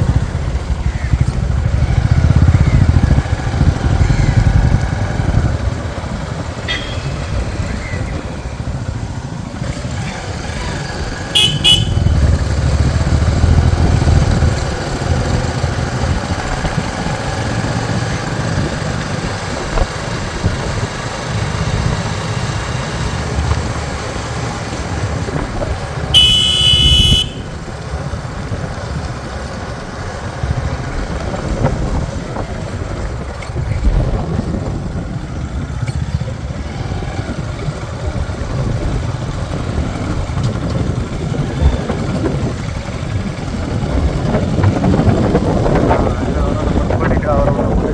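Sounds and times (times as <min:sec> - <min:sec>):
motorcycle engines running: 0:00.0 - 0:47.9
horn blast: 0:11.4 - 0:12.4, 0:26.1 - 0:27.5.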